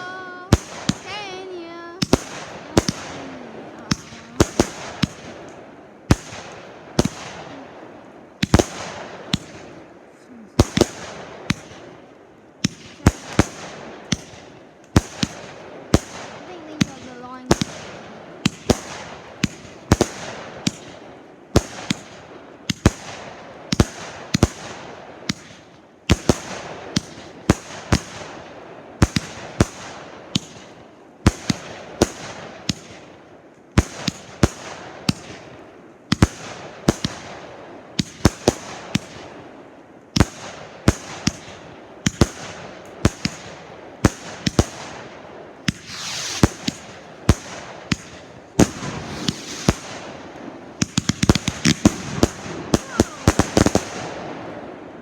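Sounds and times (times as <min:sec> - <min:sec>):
firework bangs: 0:00.0 - 0:10.0, 0:10.6 - 0:55.0
firework crackling: 0:00.0 - 0:55.0
firework whoosh: 0:45.6 - 0:55.0.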